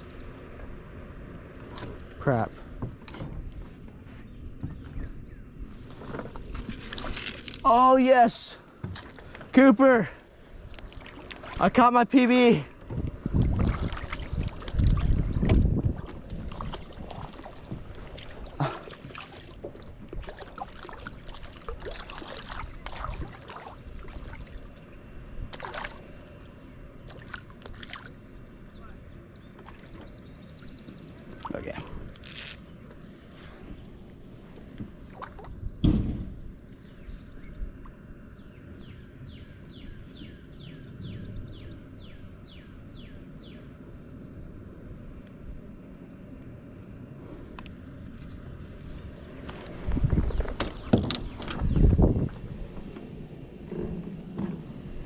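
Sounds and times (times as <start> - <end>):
wind rumble on microphone: 0.0 - 7.7, 12.4 - 55.0
water splashes and drips: 10.7 - 11.8, 13.3 - 24.9, 25.5 - 28.2, 35.0 - 35.6.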